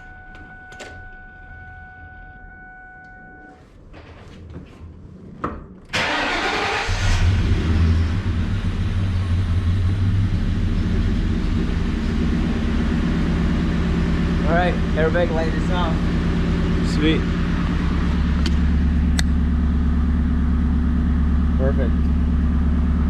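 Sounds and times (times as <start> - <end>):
car engine starting and idling: 5.8 - 23.0.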